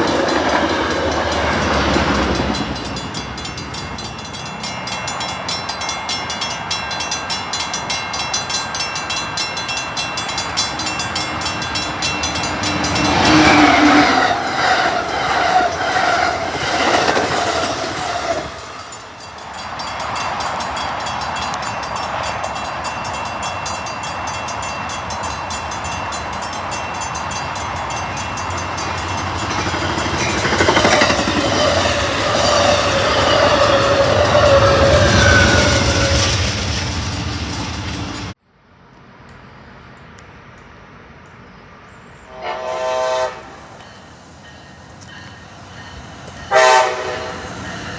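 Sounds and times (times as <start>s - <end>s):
train wheels on rails: 0.0s - 38.4s, 42.0s - 47.9s
train horn: 12.6s - 16.4s, 31.0s - 36.4s, 42.3s - 43.9s, 46.5s - 47.6s.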